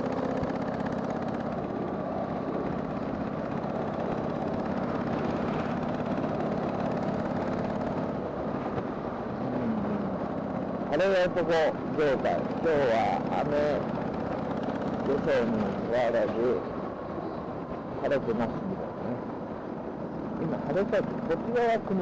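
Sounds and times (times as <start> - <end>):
motorcycle engine running: 0.0 - 16.6
road noise: 0.0 - 22.0.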